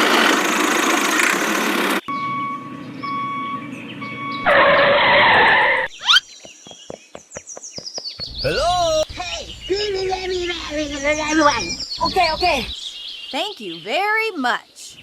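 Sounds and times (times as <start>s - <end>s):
short beeps: 2.1s - 4.9s
long falling whistle: 2.1s - 5.9s.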